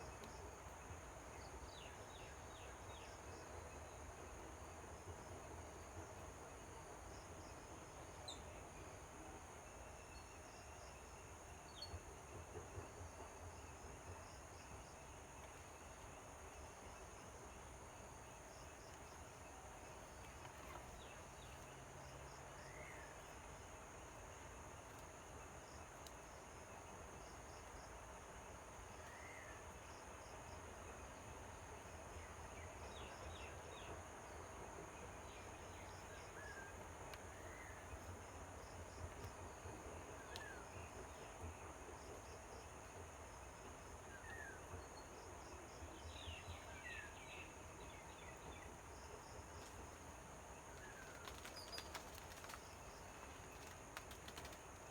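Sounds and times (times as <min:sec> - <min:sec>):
high insect drone: 0:35.2 - 0:54.9.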